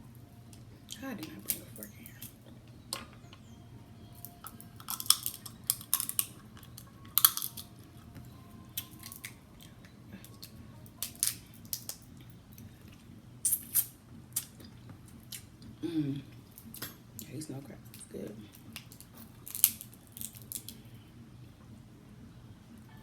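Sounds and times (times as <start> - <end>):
crab shells cracking: 4.2 - 7.8, 8.8 - 12.1, 18.5 - 20.8.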